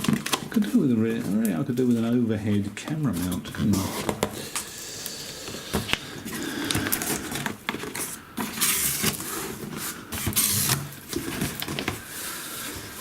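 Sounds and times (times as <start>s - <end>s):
cardboard box rustling and scraping: 7.0s - 12.0s.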